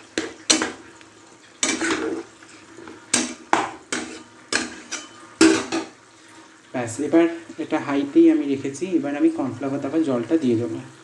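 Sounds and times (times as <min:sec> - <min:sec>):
metal spoon scraping pot: 0:01.6 - 0:05.9.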